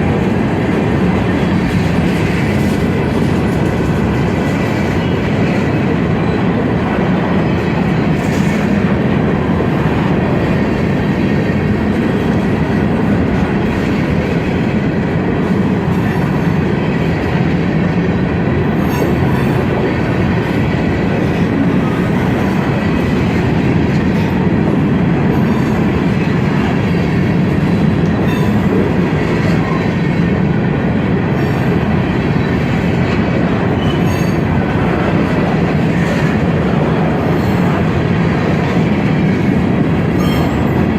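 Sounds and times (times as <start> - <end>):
train wheels clicking: 0.0 - 6.1
freight train cars rumbling: 0.0 - 40.9.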